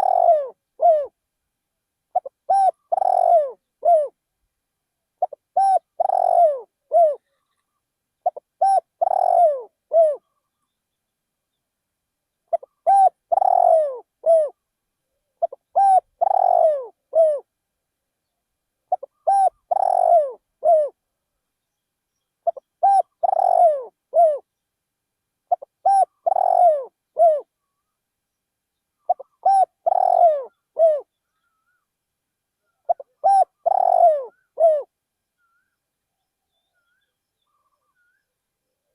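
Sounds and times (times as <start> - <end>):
dove cooing: 0.0 - 1.2, 2.1 - 4.2, 5.2 - 7.6, 8.2 - 10.3, 12.5 - 14.6, 15.4 - 17.5, 18.9 - 21.0, 22.4 - 24.5, 25.5 - 27.5, 29.1 - 31.7, 32.7 - 35.6.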